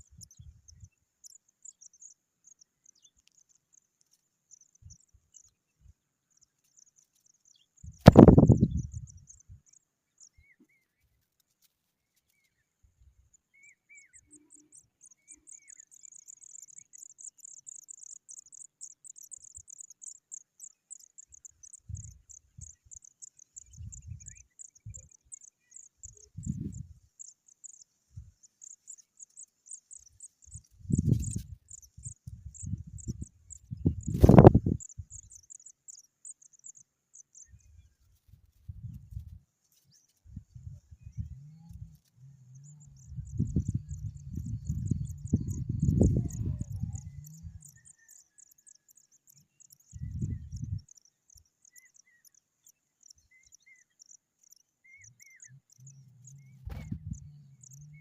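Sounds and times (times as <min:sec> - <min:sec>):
low rumbles and thumps: 0:56.6 - 0:57.2.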